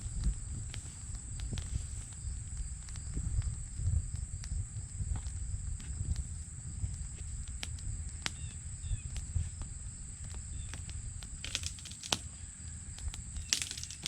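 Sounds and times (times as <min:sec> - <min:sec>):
high insect drone: 0:00.0 - 0:14.0
wind rumbling on microphone: 0:00.0 - 0:14.0
sharp clicks and snaps: 0:10.7 - 0:12.3, 0:13.0 - 0:14.0.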